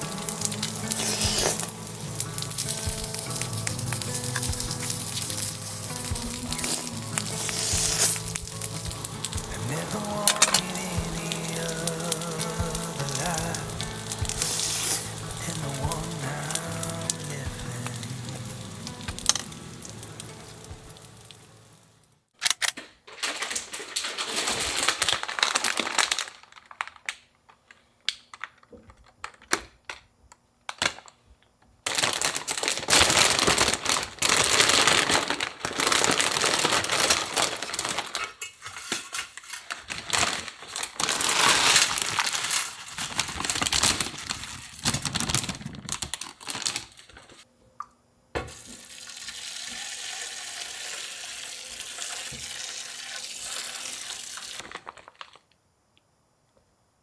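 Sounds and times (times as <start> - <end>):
food sizzling in hot oil: 0.0 - 22.1, 40.7 - 45.4, 48.5 - 54.7
song playing: 0.0 - 22.1.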